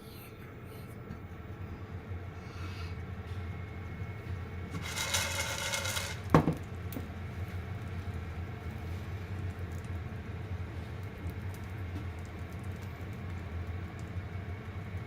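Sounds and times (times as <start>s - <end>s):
hard object clattering: 4.7s - 6.6s.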